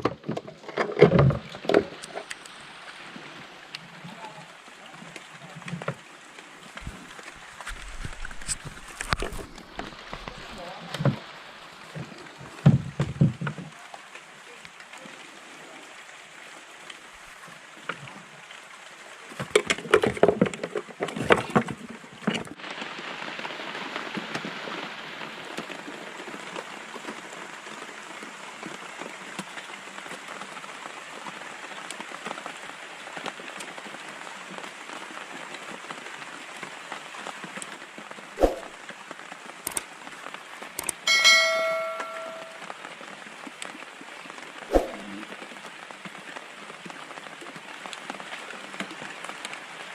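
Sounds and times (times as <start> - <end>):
steady rain: 0.0 - 49.9
bell-like ring: 41.1 - 42.6.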